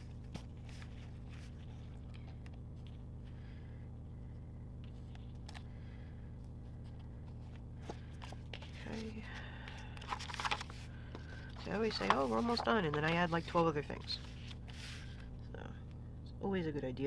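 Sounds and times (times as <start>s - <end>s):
steady low hum: 0.0s - 17.0s
paper stickers rustling and tapping: 9.8s - 14.9s.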